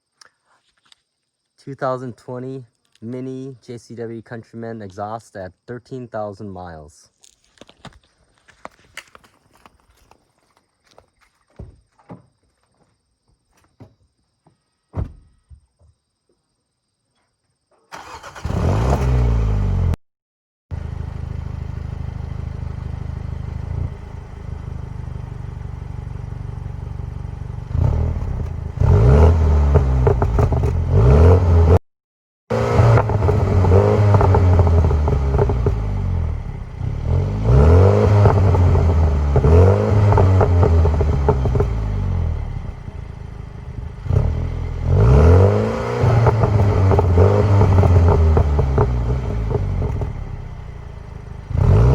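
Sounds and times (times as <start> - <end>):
car engine revving and idling: 18.0 - 20.0, 20.7 - 31.8, 32.5 - 51.9
exhaust burble and pops: 27.6 - 31.8, 32.5 - 50.9.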